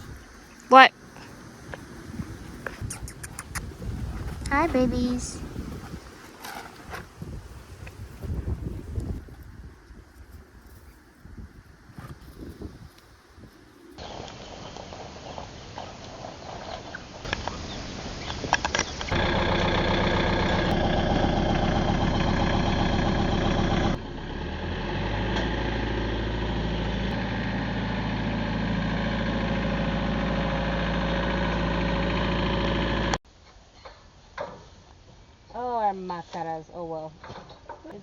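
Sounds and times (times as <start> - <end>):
engine idling: 19.0 - 33.2.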